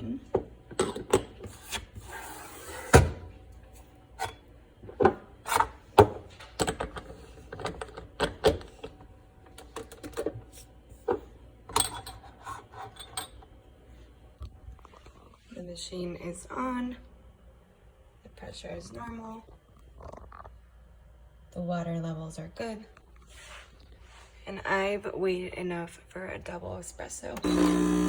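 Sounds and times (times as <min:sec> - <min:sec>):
portafilter scraping: 0:00.8 - 0:03.2, 0:27.4 - 0:28.0.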